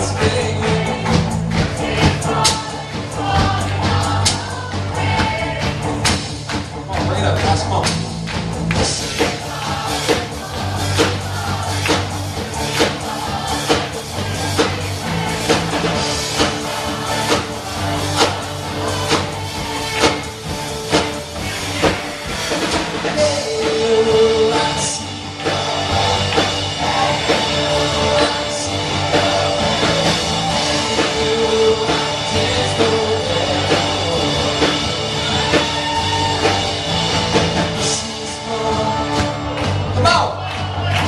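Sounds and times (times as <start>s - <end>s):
drum kit: 0.0s - 41.0s
rock band playing: 0.0s - 41.0s
person singing: 23.0s - 36.6s, 37.8s - 39.5s.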